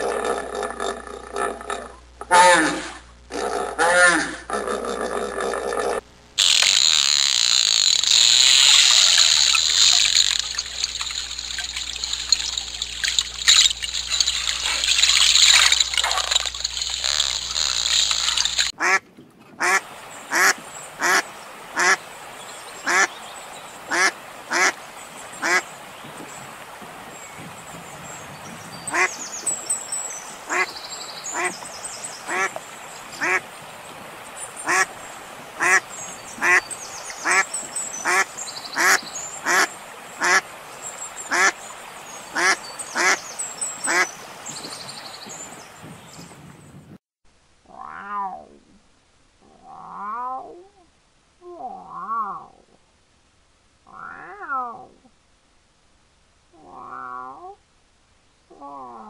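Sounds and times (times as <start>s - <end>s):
nasal waterfowl calls: 6.4s - 19.0s, 19.6s - 22.0s, 22.8s - 23.1s, 23.9s - 24.8s, 25.4s - 25.7s, 28.9s - 29.2s, 30.5s - 31.6s, 32.2s - 32.6s, 33.2s - 33.5s, 34.6s - 40.4s, 41.3s - 41.6s, 42.2s - 44.2s.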